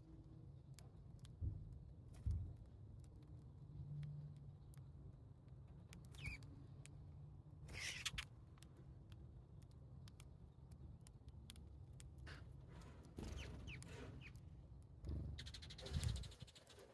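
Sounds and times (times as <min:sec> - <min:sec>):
sparrow chirps: 0:06.1 - 0:06.4, 0:07.7 - 0:08.2, 0:13.2 - 0:14.4, 0:15.3 - 0:16.9.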